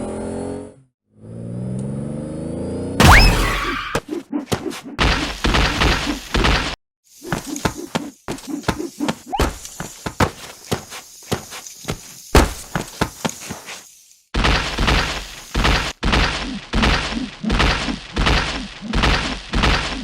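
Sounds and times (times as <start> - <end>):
impact sound effects: 3.0 - 4.0.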